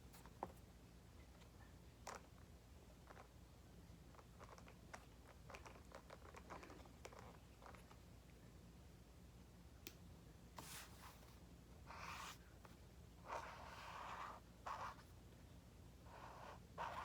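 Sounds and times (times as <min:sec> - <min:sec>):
writing on paper: 0:11.9 - 0:12.4, 0:13.2 - 0:15.1, 0:16.1 - 0:17.0.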